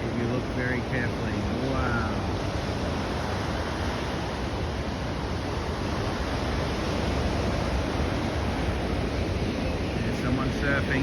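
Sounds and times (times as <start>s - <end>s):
ocean surf rushing: 0.0s - 11.0s
wind on microphone: 0.0s - 11.0s.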